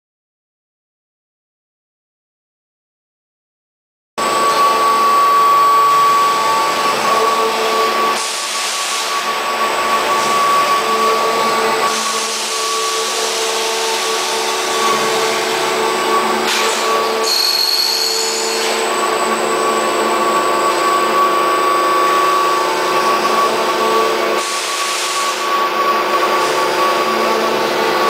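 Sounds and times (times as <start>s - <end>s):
baling machine whine: 12.6s - 24.3s.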